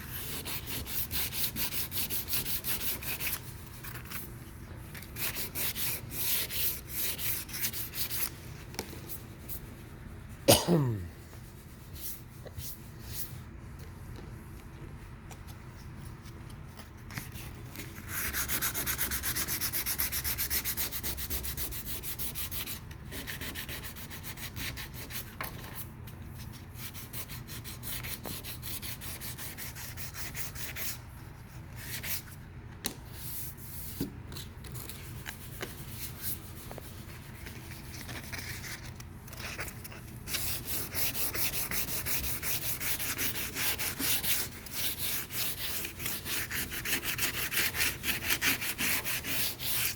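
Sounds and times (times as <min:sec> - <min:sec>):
sandpaper rubbing on primer: 0:00.0 - 0:03.4, 0:40.3 - 0:49.9.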